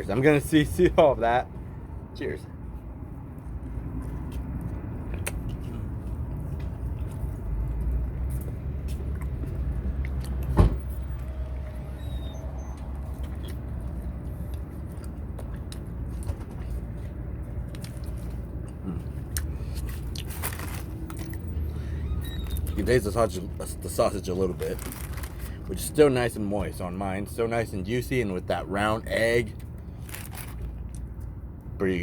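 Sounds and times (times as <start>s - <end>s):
sharp thump: 10.5s - 10.8s.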